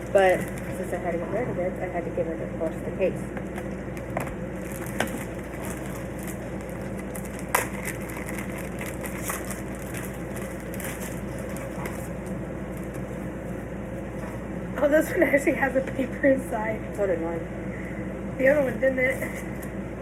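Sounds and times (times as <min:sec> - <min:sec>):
plastic packaging crinkling: 0:00.0 - 0:01.0, 0:03.5 - 0:13.2
steady low hum: 0:00.0 - 0:20.0.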